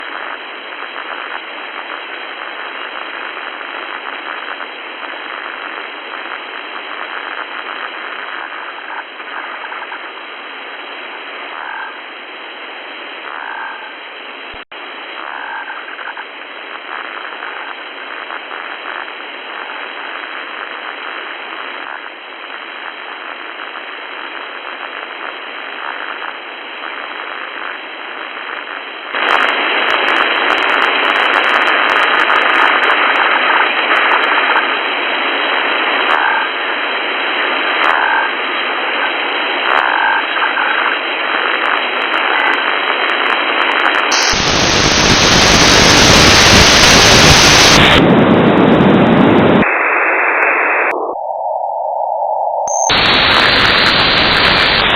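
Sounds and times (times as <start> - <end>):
radio static hiss: 0.0 - 51.8, 52.7 - 54.9
warbling radio signals: 39.6 - 54.9.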